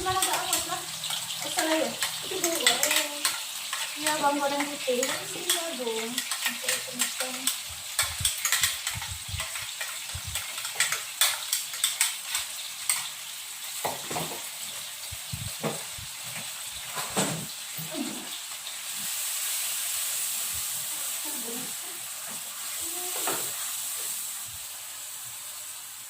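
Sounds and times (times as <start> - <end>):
utensil scraping a pan: 0.0 - 13.1
food sizzling in hot oil: 0.0 - 26.0.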